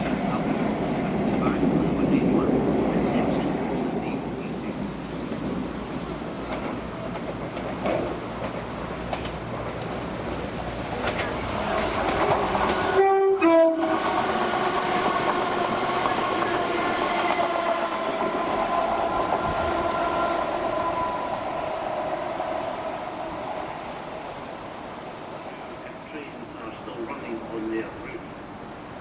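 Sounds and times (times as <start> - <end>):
train drive whine: 0.0 - 29.0
train rail noise: 0.0 - 29.0
two-tone train horn: 11.6 - 21.6.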